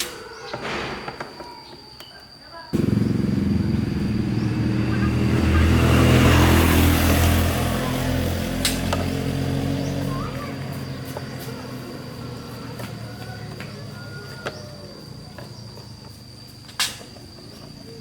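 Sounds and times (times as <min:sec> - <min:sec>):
vehicle engine passing by: 0:02.8 - 0:16.4.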